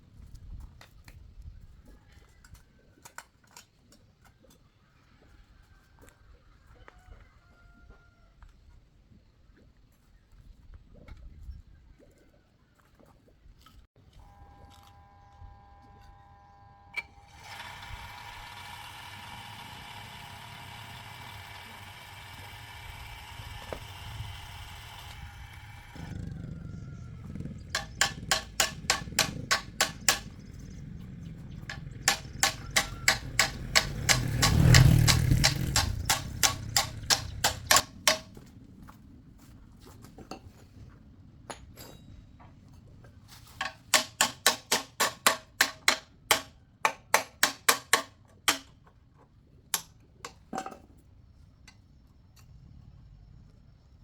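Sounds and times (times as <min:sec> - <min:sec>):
hammer blows on metal: 0:27.8 - 0:30.4, 0:31.7 - 0:38.3.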